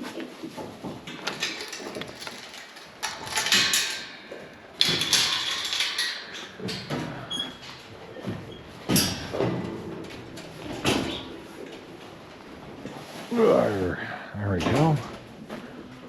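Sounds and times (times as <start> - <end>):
sliding barn door scraping: 0.7 - 13.3.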